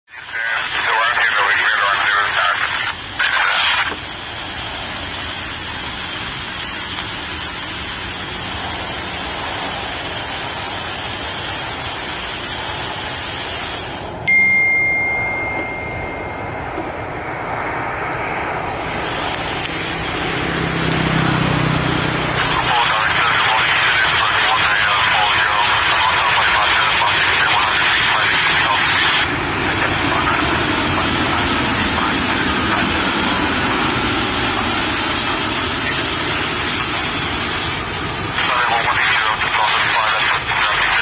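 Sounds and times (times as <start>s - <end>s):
low rumble: 2.6s - 41.0s
clear ding: 14.2s - 17.1s.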